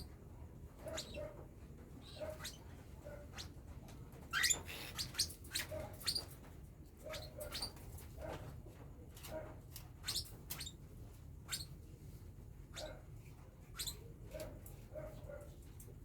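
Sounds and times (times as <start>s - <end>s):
bird chicks chirping: 0.8s - 1.4s, 4.2s - 6.4s, 7.0s - 7.9s, 10.0s - 10.8s, 11.4s - 11.8s, 13.7s - 14.1s.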